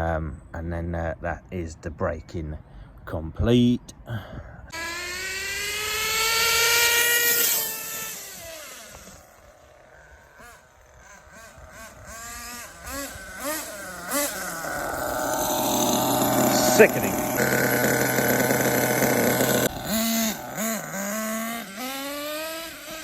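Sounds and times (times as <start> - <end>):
small nitro engine whining: 4.7 - 23.0.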